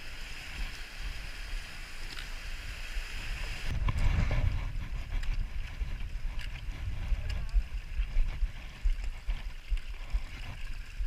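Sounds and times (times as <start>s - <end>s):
strong wind buffeting microphone: 3.2s - 11.0s.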